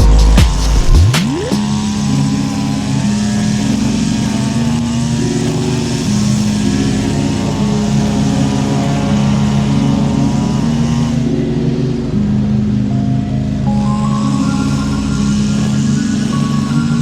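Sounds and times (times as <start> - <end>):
riding mower engine running: 0.0 - 17.0.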